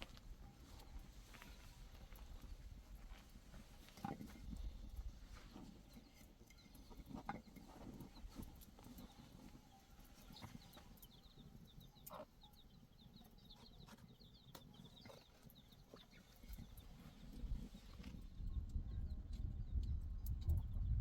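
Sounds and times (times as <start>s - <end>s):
faint bird chirping: 4.6s - 21.0s.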